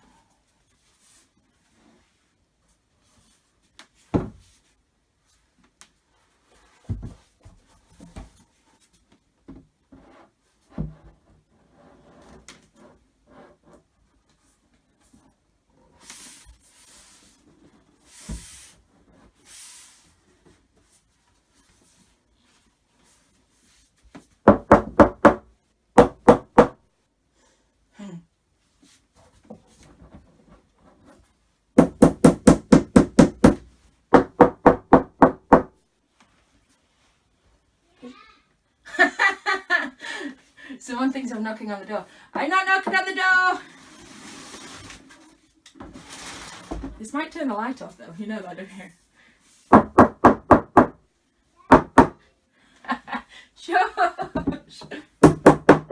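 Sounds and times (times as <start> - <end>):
rustling: 43.6 - 47.0.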